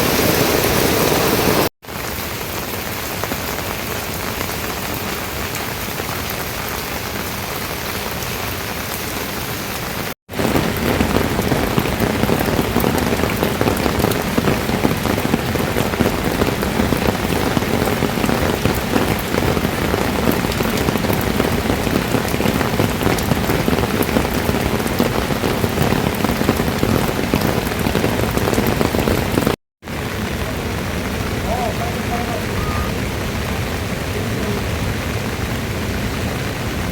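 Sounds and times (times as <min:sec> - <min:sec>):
steady rain falling: 0:00.0 - 0:36.9.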